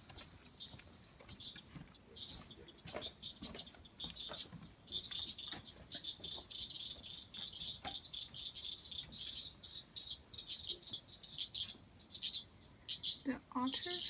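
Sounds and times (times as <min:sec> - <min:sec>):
frogs chirping: 0:00.0 - 0:14.0.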